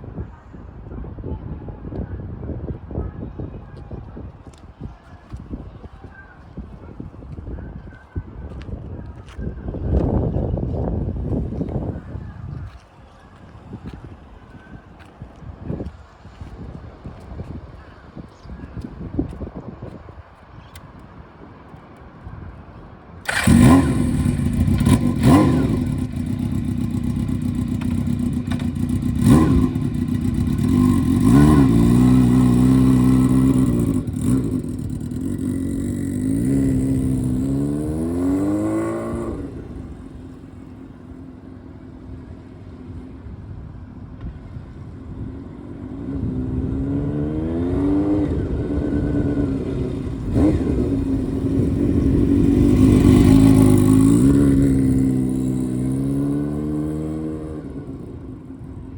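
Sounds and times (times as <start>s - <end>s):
motorcycle engine revving: 23.2s - 40.8s, 45.6s - 58.9s.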